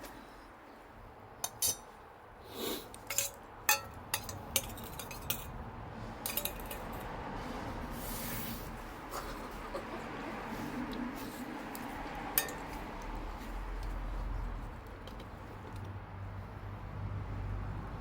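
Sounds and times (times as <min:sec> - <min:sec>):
cutlery and dishes clinking: 0:01.4 - 0:01.9, 0:03.0 - 0:05.5, 0:06.2 - 0:07.1, 0:12.4 - 0:12.8.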